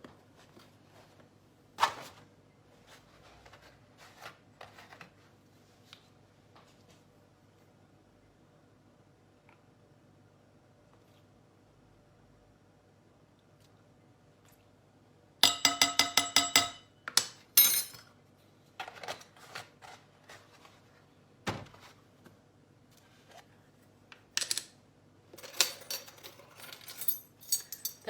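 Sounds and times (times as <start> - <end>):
spoon clinking against bowl: 15.4 - 16.9.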